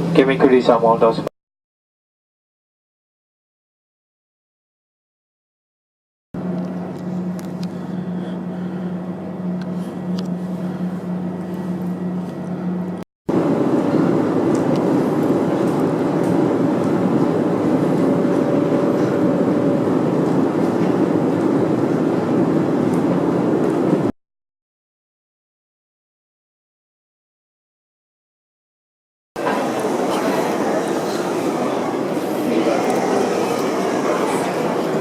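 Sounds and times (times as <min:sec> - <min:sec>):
aircraft cabin hum: 0:06.4 - 0:24.1
rushing rumble of vehicle noise: 0:06.4 - 0:24.1.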